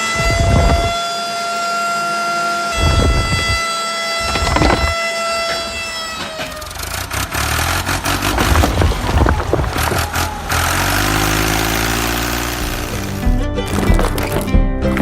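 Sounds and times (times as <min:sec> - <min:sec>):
truck engine clattering: 0:04.2 - 0:15.0
low engine hum: 0:06.6 - 0:15.0.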